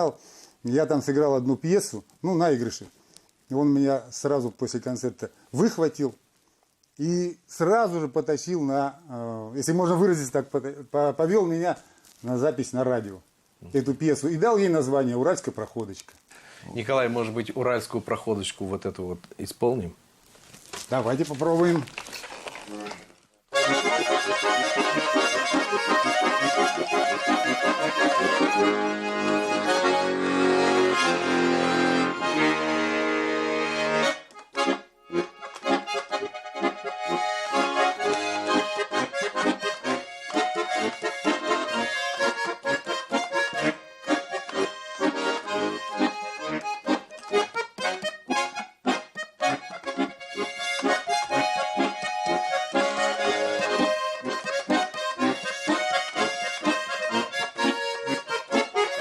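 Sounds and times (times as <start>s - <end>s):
button accordion folk tune: 23.5s - 59.0s.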